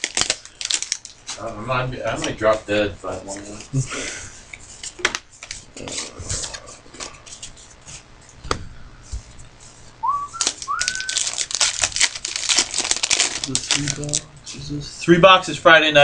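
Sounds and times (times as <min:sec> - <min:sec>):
whistled notes: 0:10.0 - 0:11.2
trading cards rustling and clicking: 0:10.3 - 0:14.2.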